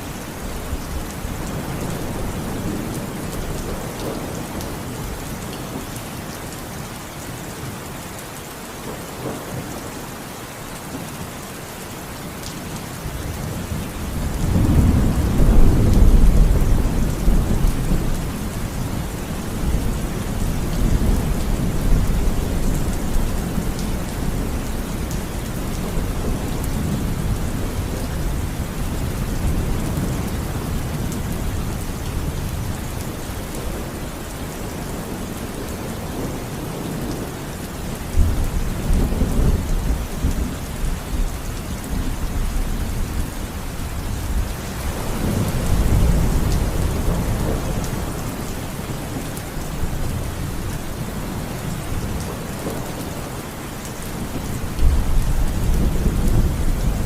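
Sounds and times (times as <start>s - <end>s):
steady rain falling: 0.0s - 57.0s
rumble of thunder: 13.2s - 34.0s, 38.0s - 53.2s, 54.1s - 57.0s.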